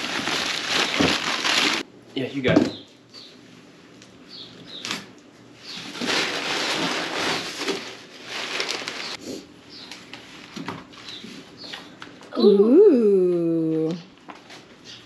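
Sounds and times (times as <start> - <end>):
packaging rustling and crinkling: 0.0 - 1.9, 5.6 - 9.2.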